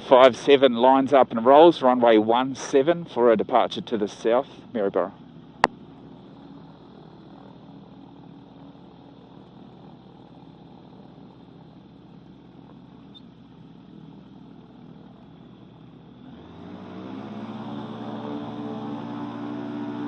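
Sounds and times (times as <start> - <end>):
muffled aircraft engine running: 0.0 - 20.0.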